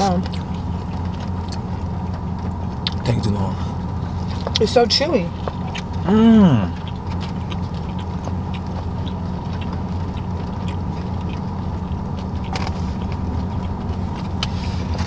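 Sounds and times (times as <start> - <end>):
chewing with mouth clicks: 0.0 - 15.0
low hum of car interior: 0.0 - 15.0
person humming: 6.0 - 6.8.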